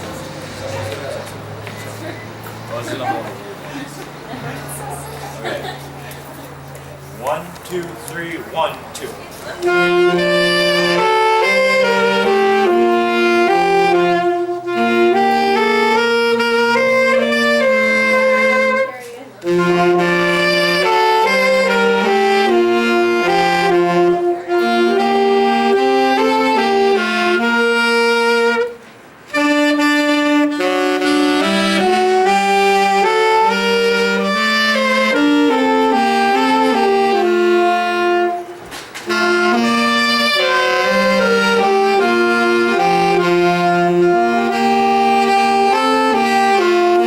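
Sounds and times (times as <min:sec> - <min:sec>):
live ensemble music: 0:09.6 - 0:47.0.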